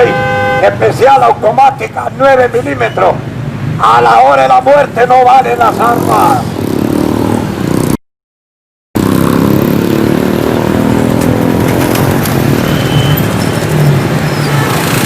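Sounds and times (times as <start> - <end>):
vehicle engine rumbling: 9.0 - 15.0.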